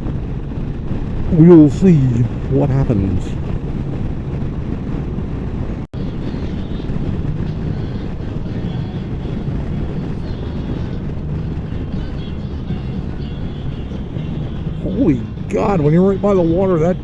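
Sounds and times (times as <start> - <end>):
motorcycle engine drone: 0.0 - 17.0
road noise: 0.0 - 17.0.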